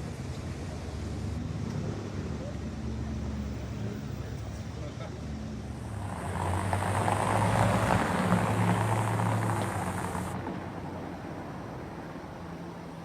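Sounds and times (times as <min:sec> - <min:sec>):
vehicle driving past: 0:05.5 - 0:10.4.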